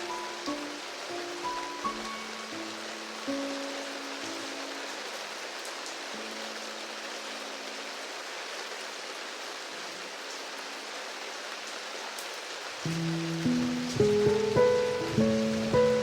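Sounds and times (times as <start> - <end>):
piano playing: 0.0 - 8.1, 12.9 - 16.0
steady rain hiss: 0.0 - 16.0.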